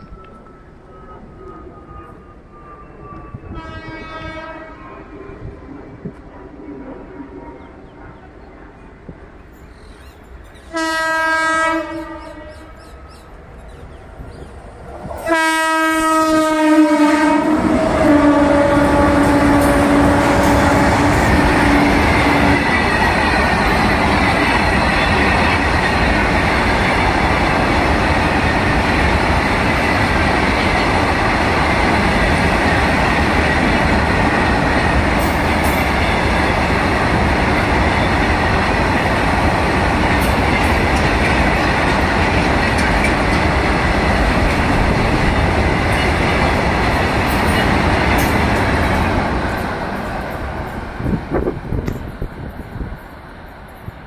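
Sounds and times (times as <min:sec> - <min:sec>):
freight train wagons rumbling past: 0:00.0 - 0:54.0
locomotive horn: 0:03.4 - 0:05.1, 0:10.6 - 0:12.9, 0:15.2 - 0:22.7.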